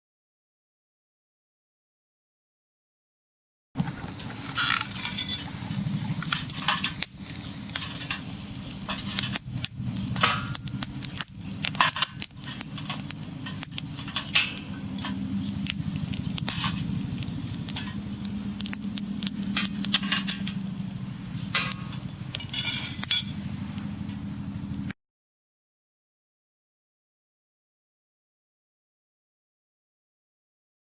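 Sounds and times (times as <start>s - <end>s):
low rumble: 3.8s - 24.9s
metal cookware clinking: 4.5s - 5.6s, 6.2s - 9.4s, 11.6s - 15.2s, 21.5s - 23.6s.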